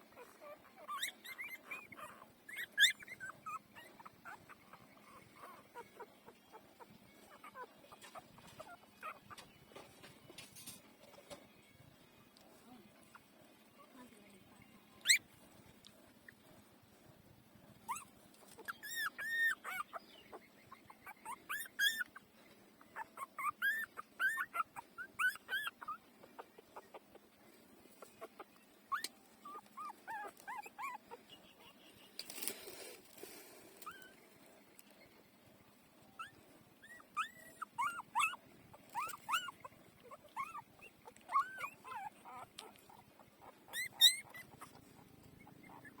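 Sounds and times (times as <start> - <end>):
puppies crying: 0.0 - 9.5, 15.0 - 15.3, 17.9 - 27.3, 28.0 - 31.7, 36.1 - 46.0.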